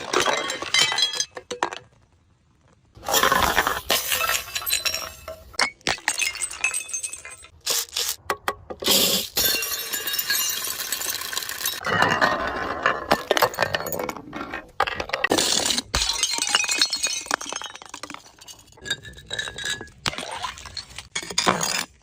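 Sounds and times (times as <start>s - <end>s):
glass shards clinking: 0.0s - 1.5s, 3.1s - 7.6s, 9.1s - 12.2s
glass bottles breaking: 0.0s - 1.9s, 3.0s - 7.6s, 8.8s - 14.0s, 15.3s - 22.0s.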